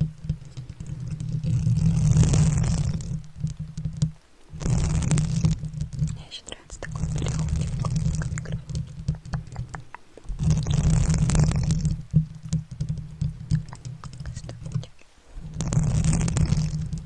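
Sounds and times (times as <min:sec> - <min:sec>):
crackly rubbing at microphone: 0:00.0 - 0:17.0
rustling: 0:00.0 - 0:17.0
small sharp clicks and taps: 0:05.2 - 0:15.0.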